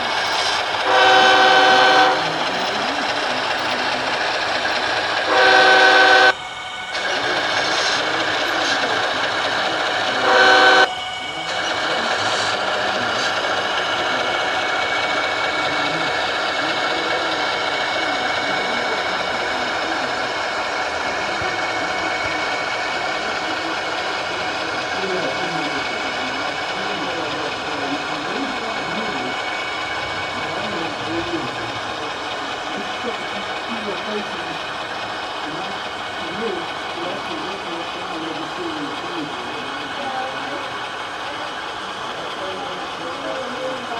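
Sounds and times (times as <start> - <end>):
model locomotive running sound: 0.0 - 43.9
model locomotive horn: 0.8 - 3.9, 4.8 - 20.2.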